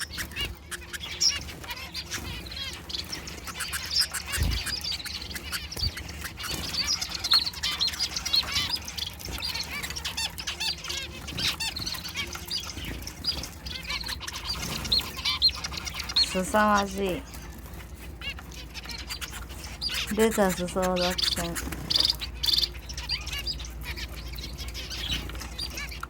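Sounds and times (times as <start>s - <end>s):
wing flutter: 0.0s - 7.3s
finches chirping and squawking: 0.0s - 26.0s.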